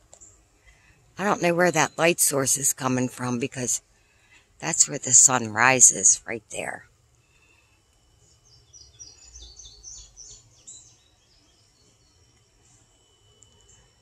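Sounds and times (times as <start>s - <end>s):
songbird chirping: 1.2s - 3.8s, 8.3s - 13.9s.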